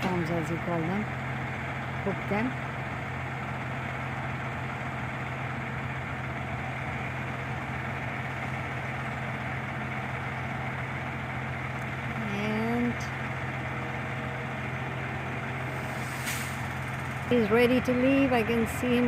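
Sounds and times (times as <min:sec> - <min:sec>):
truck engine idling: 0:00.0 - 0:19.0
short rising tone: 0:15.6 - 0:16.8.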